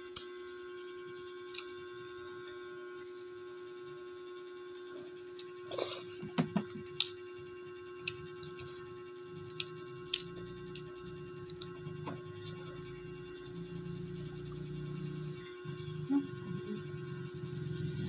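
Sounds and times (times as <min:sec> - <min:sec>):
steady electrical hum: 0:00.0 - 0:18.0
chewing and utensil clicks: 0:09.4 - 0:11.8.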